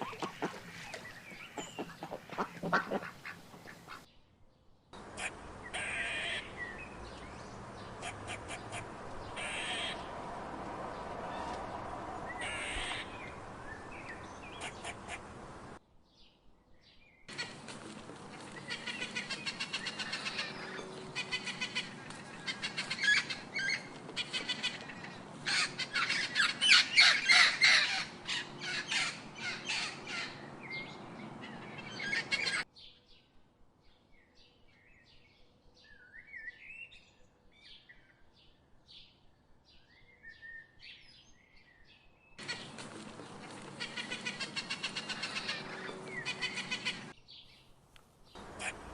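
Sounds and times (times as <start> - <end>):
harsh bird calls: 0.0 - 4.1, 5.0 - 15.7, 17.3 - 32.7, 42.4 - 47.3, 48.4 - 48.9.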